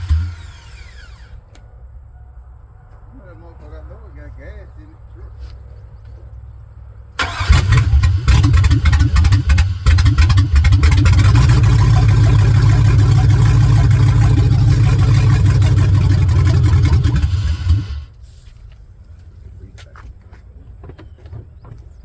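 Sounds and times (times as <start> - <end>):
vehicle engine running: 7.2 - 18.1.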